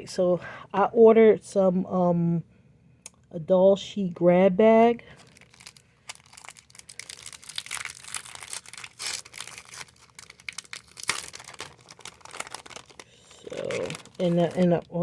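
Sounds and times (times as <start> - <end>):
packaging crinkling and rustling: 5.1 - 15.0.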